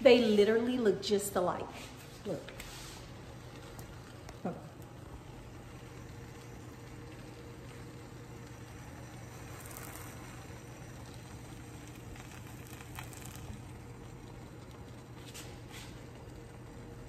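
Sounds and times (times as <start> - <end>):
sandwiches sizzling in frying pans: 5.8 - 14.7.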